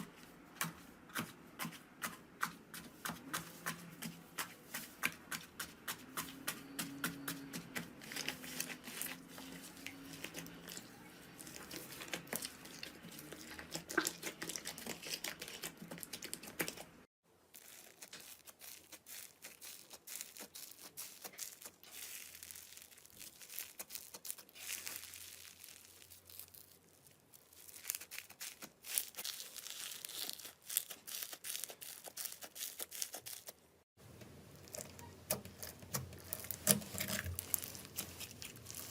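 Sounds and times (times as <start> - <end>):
slime crackling and popping: 17.6 - 33.6, 34.5 - 38.9.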